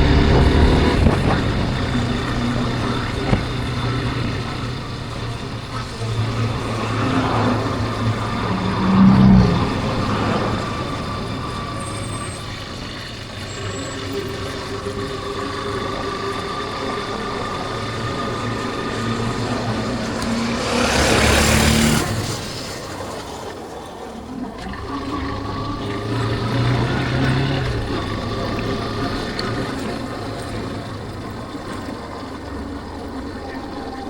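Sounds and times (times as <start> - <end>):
wind rush: 0.0 - 23.5
motorcycle engine running: 0.0 - 23.7, 24.5 - 34.0.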